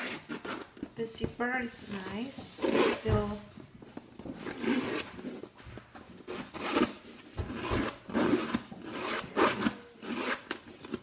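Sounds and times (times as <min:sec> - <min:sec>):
zipper rasping: 0:00.0 - 0:00.9, 0:02.6 - 0:03.3, 0:04.4 - 0:05.6, 0:06.2 - 0:11.0
canvas bag rubbing: 0:00.0 - 0:01.0, 0:01.8 - 0:03.5, 0:04.4 - 0:05.6, 0:06.2 - 0:11.0.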